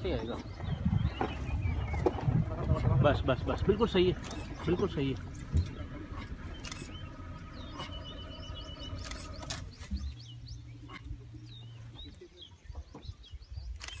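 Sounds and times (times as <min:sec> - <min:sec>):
birds chirping: 0:00.0 - 0:14.0
low steady rumble: 0:00.0 - 0:14.0
sharp clicks: 0:05.5 - 0:07.0, 0:08.9 - 0:09.8, 0:13.7 - 0:14.0.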